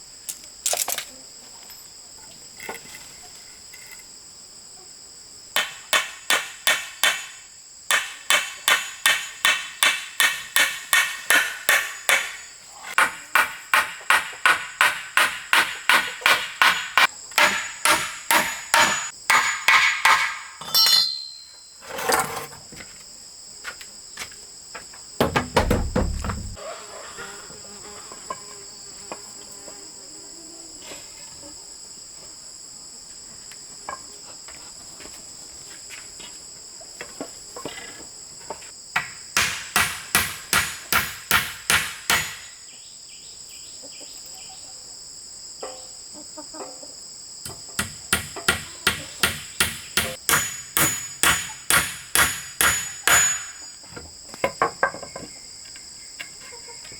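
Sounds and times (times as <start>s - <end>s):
insects buzzing: 0.0s - 56.9s
dull thud: 25.2s - 26.6s.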